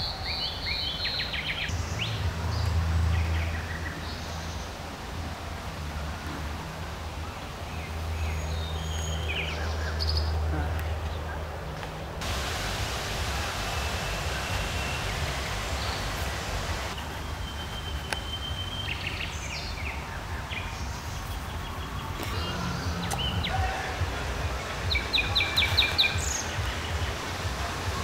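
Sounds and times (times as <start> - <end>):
songbirds chirping: 0.0 - 28.0
sharp repeated bird notes: 12.2 - 17.0.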